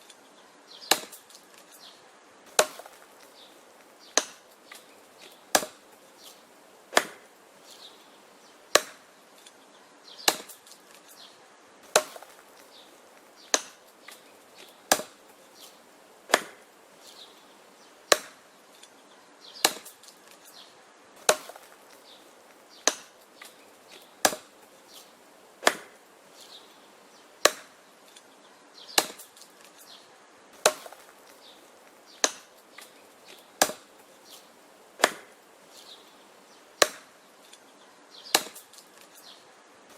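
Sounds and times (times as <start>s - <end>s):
axe chopping wood: 0.8s - 1.7s, 2.5s - 5.9s, 6.9s - 7.3s, 8.7s - 9.1s, 10.2s - 11.1s, 11.8s - 16.7s, 18.1s - 18.4s, 19.6s - 20.5s, 21.2s - 26.0s, 27.4s - 28.2s, 28.9s - 29.8s, 30.6s - 35.4s, 36.8s - 37.2s, 38.3s - 39.1s
smaller wood knocks: 25.6s - 26.0s, 35.0s - 35.3s.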